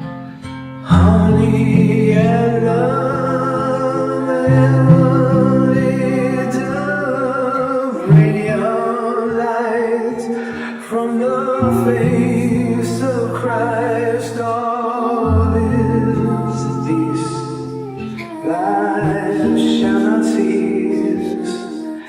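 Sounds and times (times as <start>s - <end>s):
choir singing held notes: 10.2s - 22.0s.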